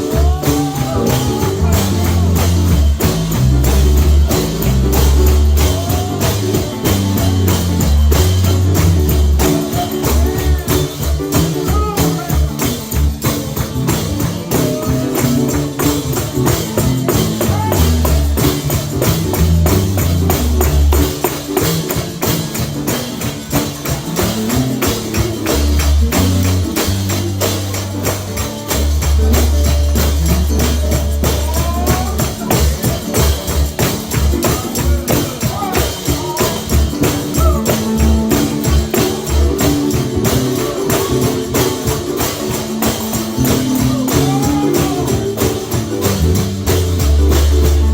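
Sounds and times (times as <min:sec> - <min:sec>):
deep bass notes: 0:00.0 - 0:21.4, 0:24.2 - 0:32.7, 0:43.3 - 0:47.9
live gospel music: 0:00.0 - 0:47.9
tambourine: 0:00.0 - 0:47.9.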